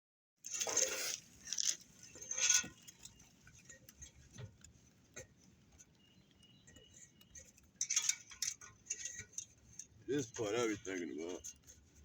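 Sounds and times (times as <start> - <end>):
rustling scrapes: 0.4 - 4.4.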